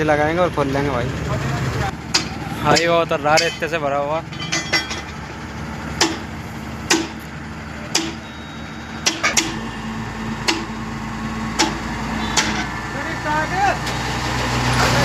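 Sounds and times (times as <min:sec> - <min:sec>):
sharp knocks: 0:02.1 - 0:03.7, 0:06.0 - 0:06.3, 0:06.9 - 0:07.2, 0:07.9 - 0:08.2, 0:10.4 - 0:10.7, 0:11.6 - 0:12.7.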